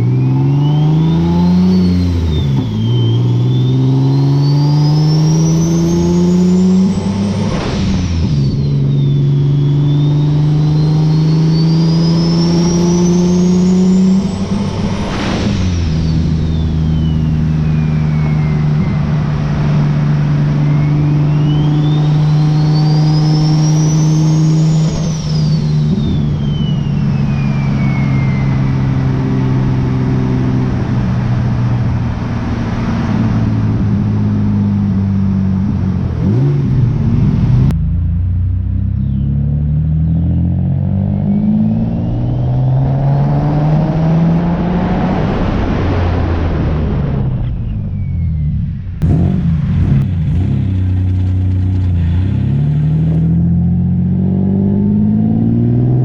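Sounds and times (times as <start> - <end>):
turbo whistle: 0.0 - 6.7, 8.3 - 14.0, 15.9 - 19.3, 20.5 - 29.5
car engine revving up: 0.0 - 56.0
car engine running: 47.4 - 55.2.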